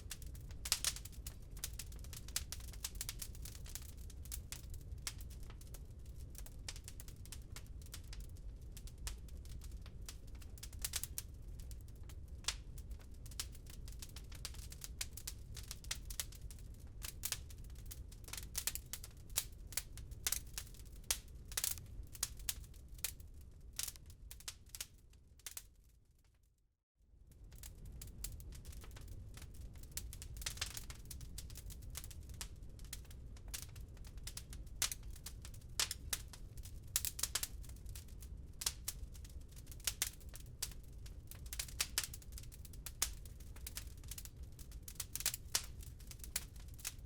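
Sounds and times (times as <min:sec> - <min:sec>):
wood fire crackling: 0:00.0 - 0:26.3, 0:27.3 - 0:47.0.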